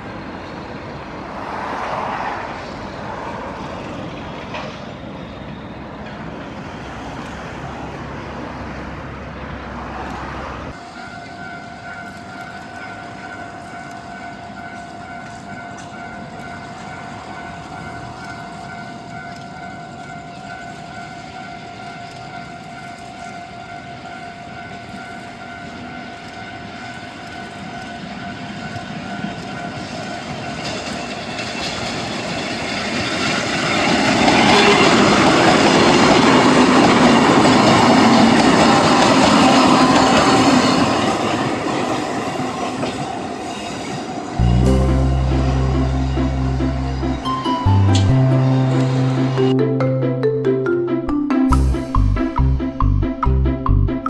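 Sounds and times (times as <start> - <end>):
electric train approaching: 0.0 - 54.0
road traffic: 0.0 - 54.0
steady high tone: 44.4 - 54.0.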